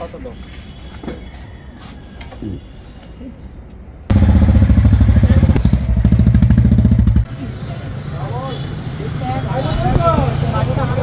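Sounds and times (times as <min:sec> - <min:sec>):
motorcycle engine starting and idling: 0:04.1 - 0:07.3.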